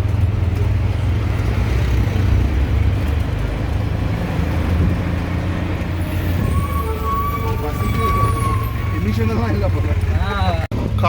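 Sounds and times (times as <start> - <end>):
vehicle engine and road rumble: 0.0 - 11.0
steady high tone: 5.9 - 10.7.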